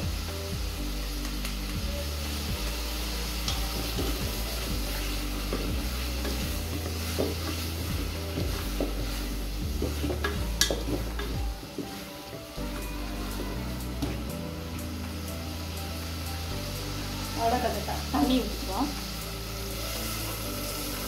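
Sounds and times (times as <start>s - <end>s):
vegetables sizzling in oil: 0.0s - 21.0s
wooden spatula scraping a pot: 3.4s - 12.1s.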